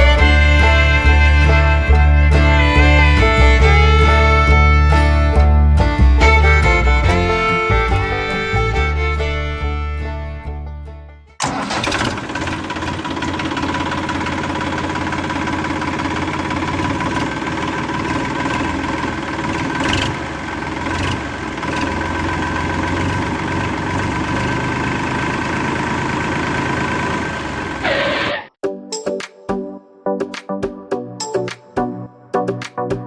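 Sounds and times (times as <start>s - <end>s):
small motor whining: 13.2s - 28.5s.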